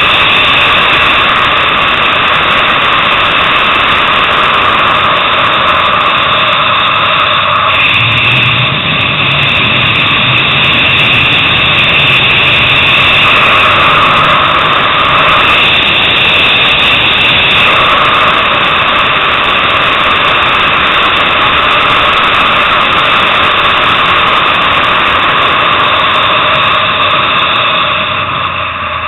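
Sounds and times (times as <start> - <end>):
motorcycle engine at high revs: 0.0 - 29.0.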